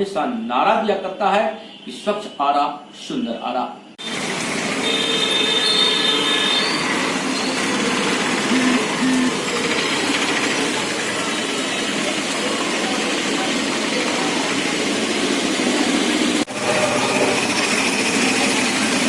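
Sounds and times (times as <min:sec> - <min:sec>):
passing traffic: 0:04.0 - 0:19.0
thin high squeal: 0:05.6 - 0:10.5.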